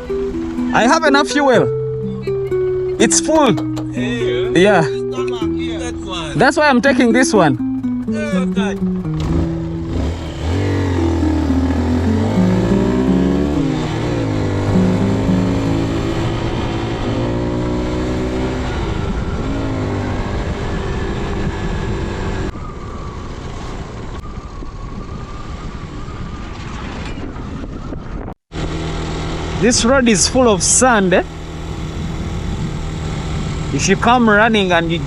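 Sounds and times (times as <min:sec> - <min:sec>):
motorcycle engine accelerating: 0:07.6 - 0:22.5, 0:28.5 - 0:35.0.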